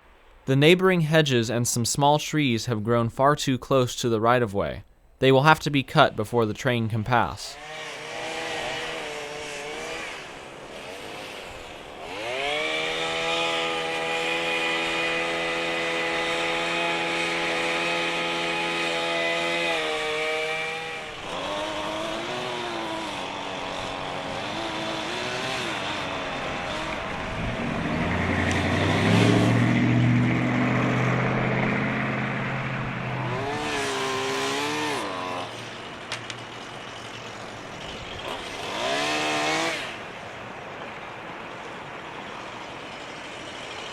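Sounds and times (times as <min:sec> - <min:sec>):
lower-pitched engine running: 0:07.2 - 0:43.9
chainsaw revving: 0:07.6 - 0:40.4.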